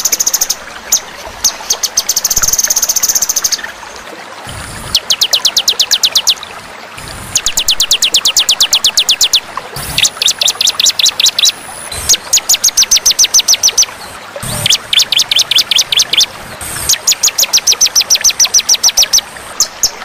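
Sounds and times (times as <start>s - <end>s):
songbird singing rapid high notes: 4.8s - 6.4s, 7.3s - 20.0s.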